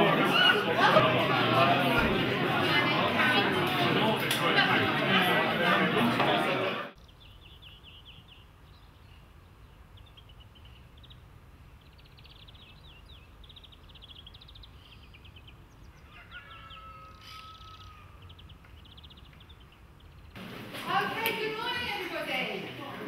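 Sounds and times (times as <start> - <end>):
songbirds singing: 6.9 - 20.4.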